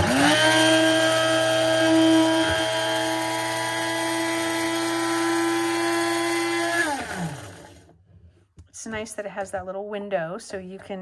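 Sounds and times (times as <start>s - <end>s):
electric grinder motor whine: 0.0s - 7.8s.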